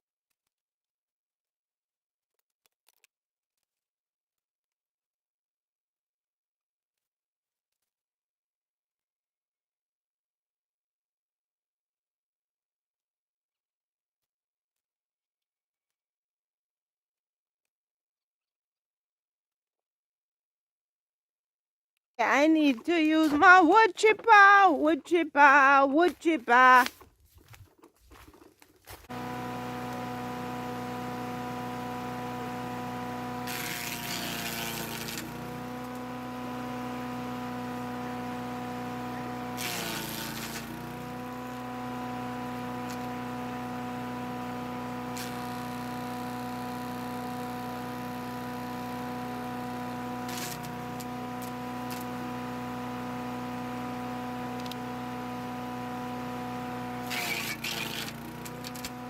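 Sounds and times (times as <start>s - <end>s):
wood chipper motor humming: 22.2s - 59.0s
wood being chipped rasping: 28.1s - 41.6s, 57.0s - 59.0s.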